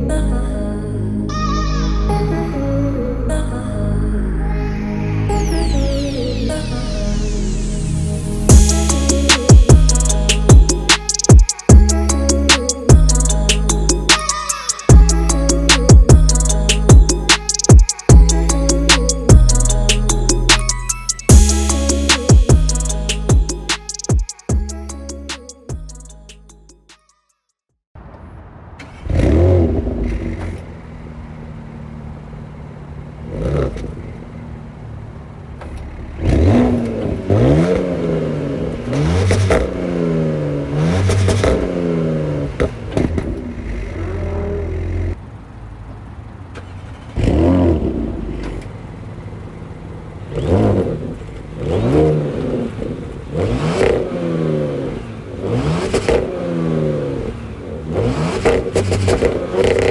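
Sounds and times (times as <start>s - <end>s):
car exhaust revving: 36.0s - 45.7s, 49.4s - 59.9s.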